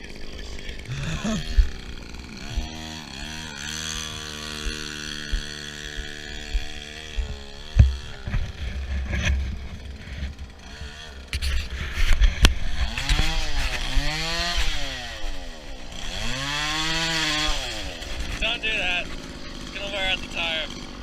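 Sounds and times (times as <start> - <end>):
small engine revving: 0.0 - 21.0
sharp knocks: 3.9 - 9.4.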